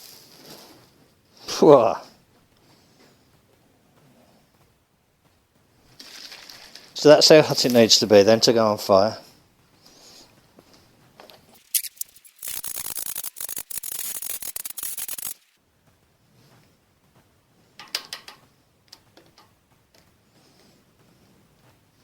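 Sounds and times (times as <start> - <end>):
welding arc crackling: 11.5 - 15.6
sharp click: 11.6 - 15.4.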